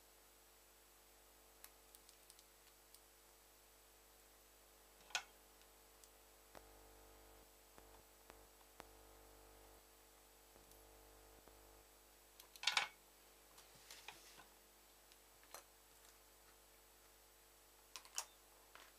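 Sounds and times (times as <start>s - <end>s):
computer mouse clicks: 1.6s - 3.0s, 17.9s - 18.4s.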